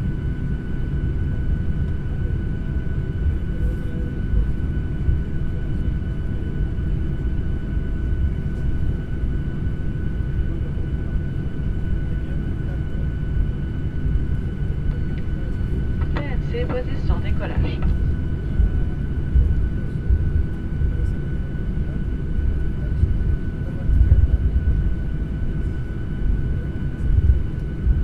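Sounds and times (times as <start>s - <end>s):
airliner engine rumble: 0.0s - 28.0s
faint whining tones: 10.1s - 28.0s.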